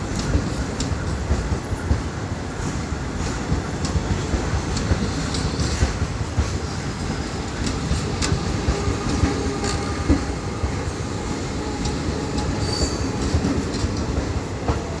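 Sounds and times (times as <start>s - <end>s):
rail clicks: 0.0s - 15.0s
train wheels rumbling on rail: 0.0s - 15.0s
high wheel squeal: 12.3s - 13.3s.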